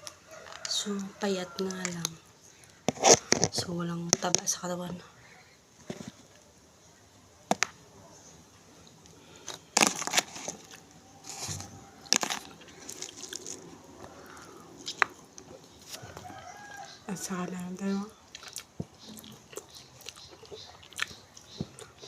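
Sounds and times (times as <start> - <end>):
chewing crunches: 9.3 - 17.0, 18.3 - 22.0
crab shell cracking: 9.4 - 16.9.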